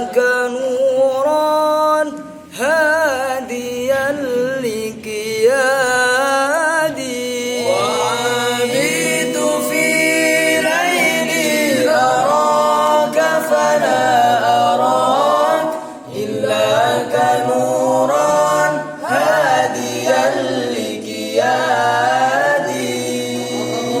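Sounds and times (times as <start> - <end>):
group singing melismatic vocals: 2.1 - 24.0.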